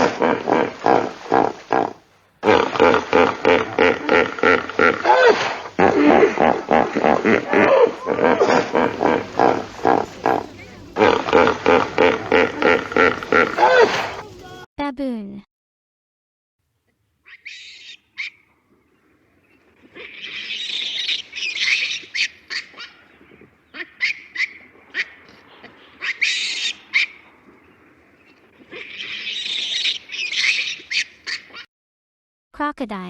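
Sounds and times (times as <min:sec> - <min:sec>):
baboons shrieking: 0:00.0 - 0:14.3, 0:20.0 - 0:23.0, 0:23.7 - 0:27.3, 0:28.7 - 0:31.6.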